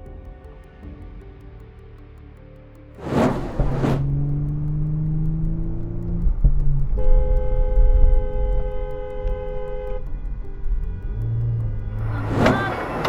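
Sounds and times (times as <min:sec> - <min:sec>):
vehicle rumble on road: 0:03.0 - 0:13.0
car horn: 0:07.0 - 0:10.3.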